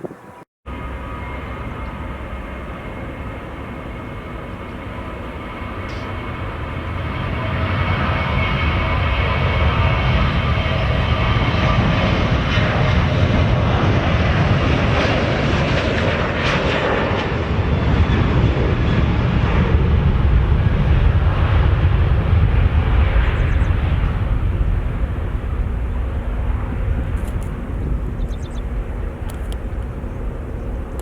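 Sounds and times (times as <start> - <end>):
high engine whine: 0.0 - 31.0
jet engines rumbling: 0.0 - 31.0.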